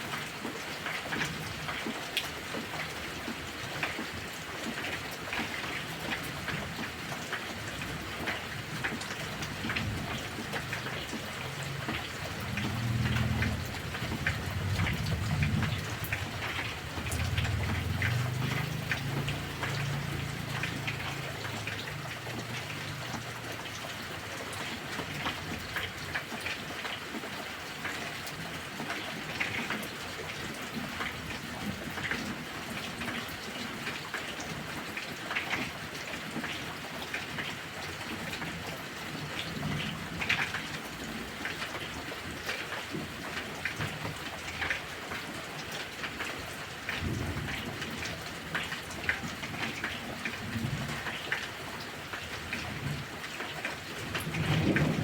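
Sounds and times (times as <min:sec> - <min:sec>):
heavy rain pattering: 0:00.0 - 0:55.0
thunder rumble: 0:09.8 - 0:21.2, 0:54.2 - 0:55.0.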